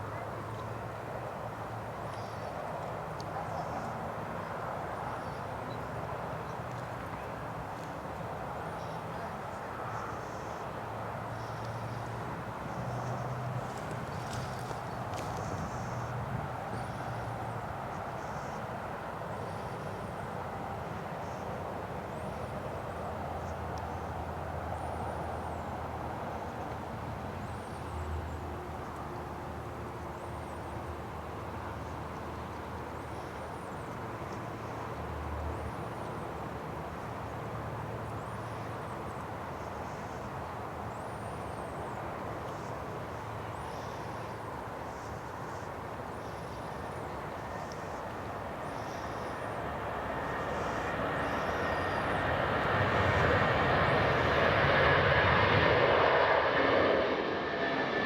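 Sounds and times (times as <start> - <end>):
jet engines rumbling: 48.4 - 58.0.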